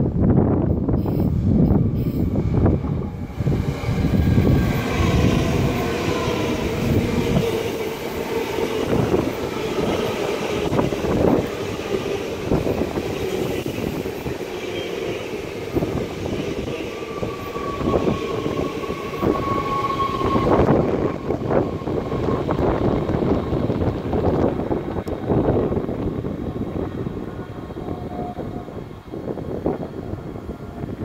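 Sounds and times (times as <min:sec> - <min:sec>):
train wheels rumbling on rails: 0:00.0 - 0:31.0
train motor whine: 0:01.6 - 0:25.6.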